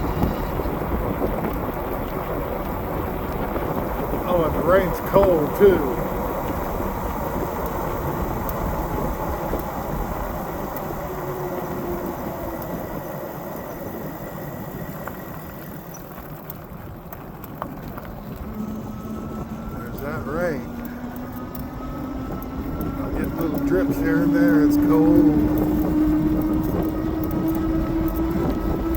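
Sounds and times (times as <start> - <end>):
faint electric motor whine: 0.0 - 28.9
steady low hum: 0.0 - 28.9
tyre noise on wet road: 0.0 - 28.9
wind rushing over microphone: 0.0 - 28.9.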